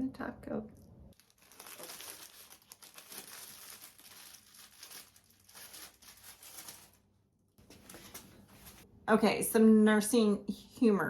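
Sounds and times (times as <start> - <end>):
tack cloth crinkling and peeling: 1.1 - 7.1.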